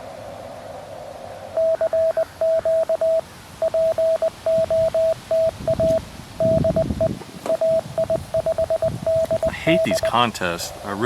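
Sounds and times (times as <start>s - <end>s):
morse code tone: 1.6s - 10.2s.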